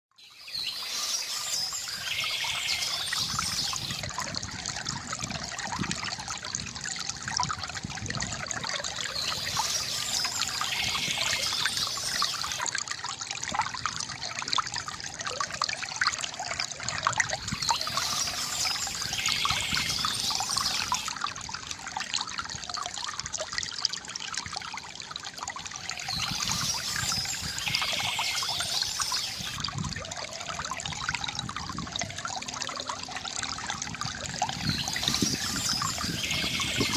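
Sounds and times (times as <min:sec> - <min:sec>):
fountain water trickling: 0:00.2 - 0:36.9
birds chirping: 0:09.1 - 0:12.6, 0:17.4 - 0:21.1, 0:26.1 - 0:29.6, 0:34.6 - 0:36.9.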